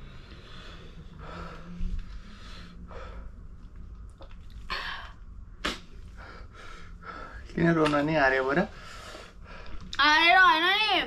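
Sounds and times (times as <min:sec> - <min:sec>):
person breathing hard: 0:00.0 - 0:03.4, 0:06.1 - 0:07.5.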